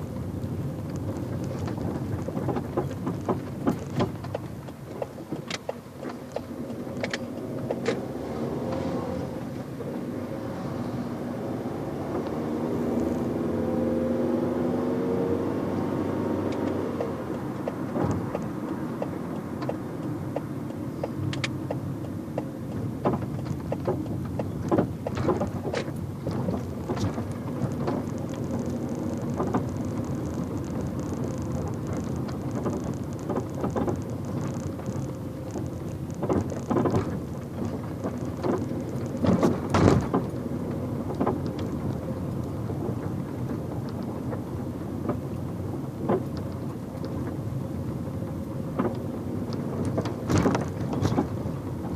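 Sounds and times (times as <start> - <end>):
car engine and road noise: 0.0 - 51.9
sharp knocks and clicks: 0.4 - 8.1, 16.4 - 40.4, 41.0 - 42.0, 46.0 - 47.4, 48.7 - 51.9.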